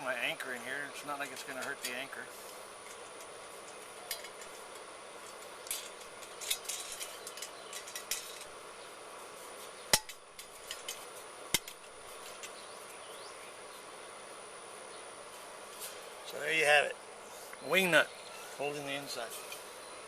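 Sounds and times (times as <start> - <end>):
metal hardware clicking and tapping: 9.9 - 12.6.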